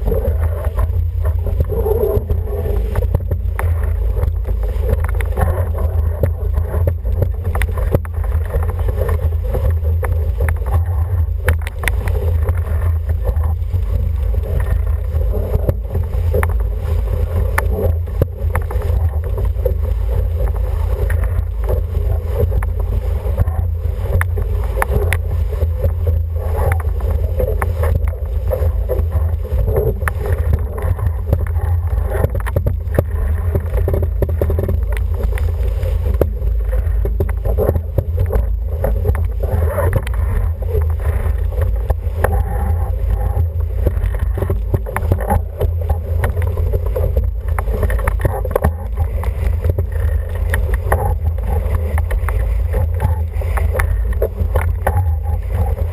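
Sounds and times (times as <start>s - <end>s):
water splashing against hull: 0.0s - 55.9s.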